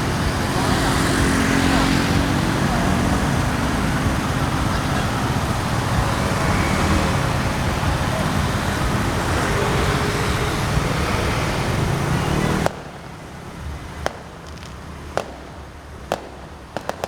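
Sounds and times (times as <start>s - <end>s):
vehicle engines and traffic: 0.0s - 17.0s.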